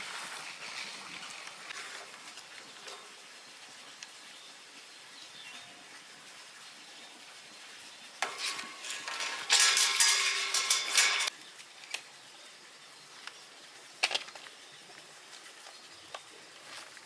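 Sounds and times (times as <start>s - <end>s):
arc welding crackle: 8.2s - 11.4s.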